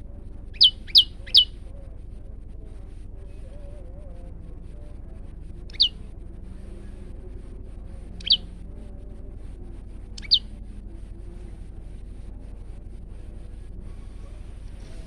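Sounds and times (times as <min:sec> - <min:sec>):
steady low hum: 0:00.0 - 0:15.0
bird chirps sweeping down: 0:00.6 - 0:01.5, 0:05.7 - 0:05.9, 0:08.2 - 0:08.4, 0:10.2 - 0:10.4.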